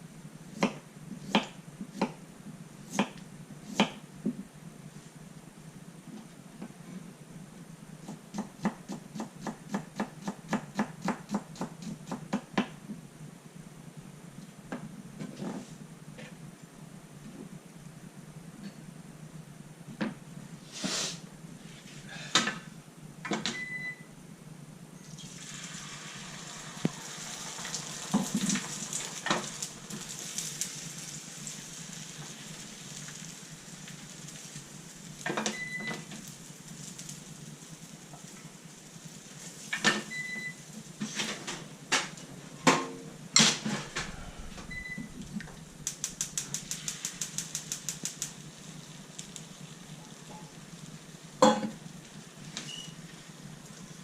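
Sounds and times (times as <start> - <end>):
appliance electronic beep: 23.5 - 24.1, 35.4 - 36.0, 40.1 - 40.6, 44.3 - 45.3, 52.6 - 53.0
hissing: 43.8 - 49.6.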